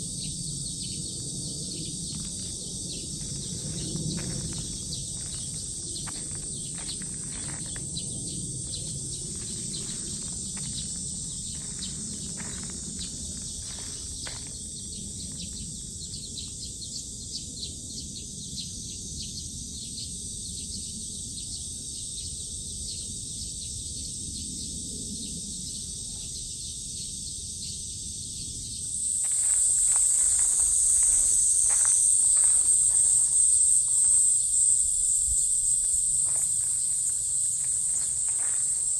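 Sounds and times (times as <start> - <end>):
low outdoor rumble: 0.0 - 14.5, 29.2 - 34.3, 35.0 - 38.9
cicadas buzzing: 0.0 - 38.9.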